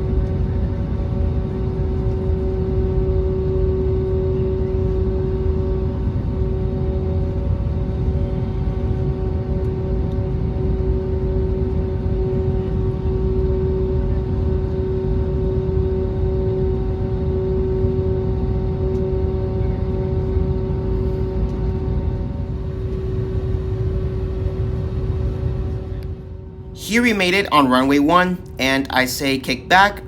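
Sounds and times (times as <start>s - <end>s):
jet engines humming: 20.8s - 30.0s.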